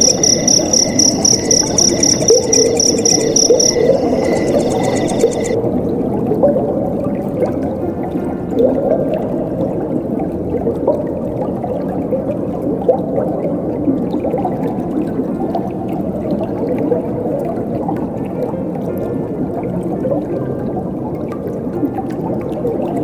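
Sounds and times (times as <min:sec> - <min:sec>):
water gurgling: 0:00.0 - 0:05.6.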